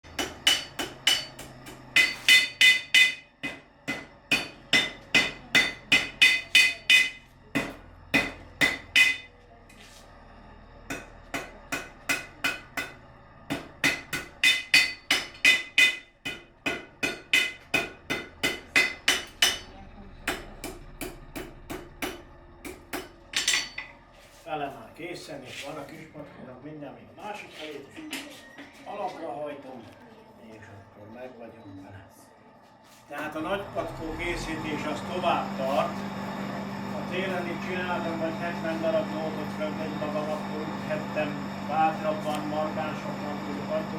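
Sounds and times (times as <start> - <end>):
hammer striking horseshoe on anvil: 0.1 - 9.4, 10.9 - 24.0.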